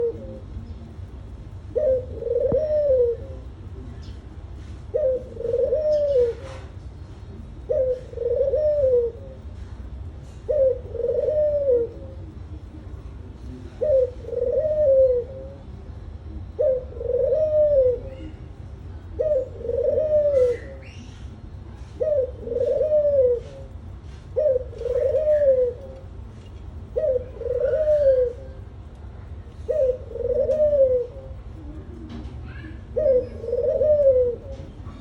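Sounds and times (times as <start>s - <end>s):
dove cooing: 0.0s - 0.7s, 1.5s - 35.0s
small birds chirping: 0.0s - 4.4s, 17.9s - 21.5s.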